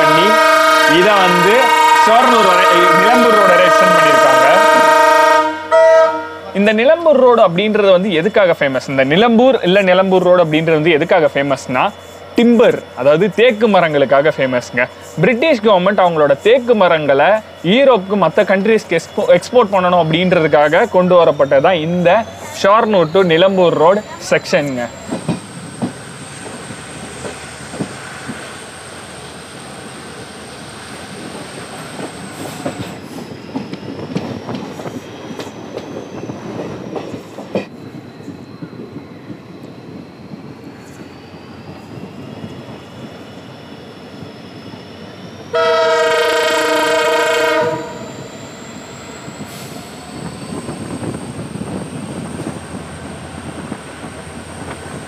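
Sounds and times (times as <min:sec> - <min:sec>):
train horn blast: 0:00.0 - 0:06.6, 0:45.5 - 0:48.2
train wheels rattling: 0:06.6 - 0:55.0.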